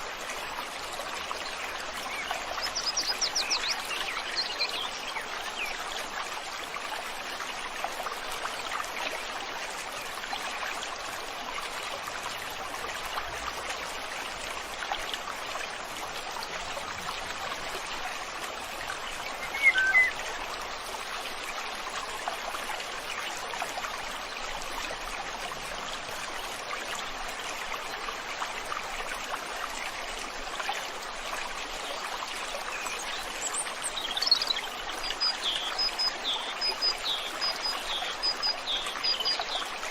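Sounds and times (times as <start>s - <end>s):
river water flowing: 0.0s - 39.9s
short bird call: 19.5s - 20.1s.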